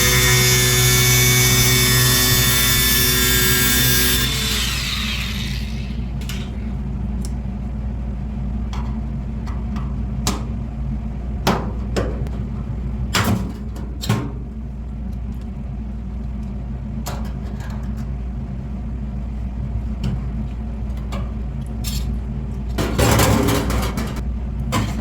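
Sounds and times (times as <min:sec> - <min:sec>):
waste disposer motor humming: 0:00.0 - 0:06.7.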